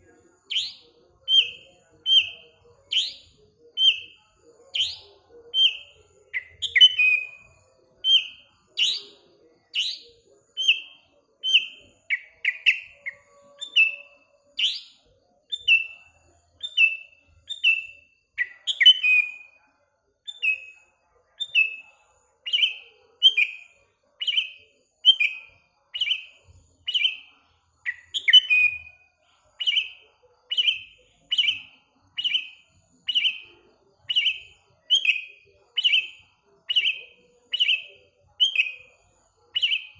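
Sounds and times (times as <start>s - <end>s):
bulbul chirping: 0.0s - 19.5s, 29.6s - 39.0s, 39.6s - 39.9s.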